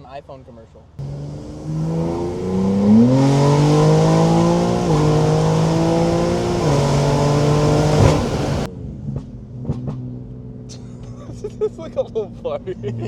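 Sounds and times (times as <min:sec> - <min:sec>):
sports car engine accelerating: 0:01.0 - 0:08.7
exhaust pop: 0:01.6 - 0:08.7.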